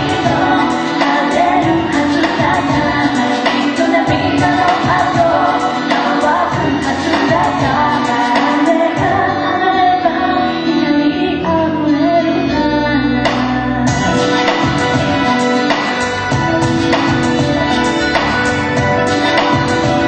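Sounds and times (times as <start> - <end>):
steady beat: 0.0 - 9.2, 13.9 - 20.0
live band playing: 0.0 - 9.4, 13.2 - 20.0
person singing: 0.0 - 20.0.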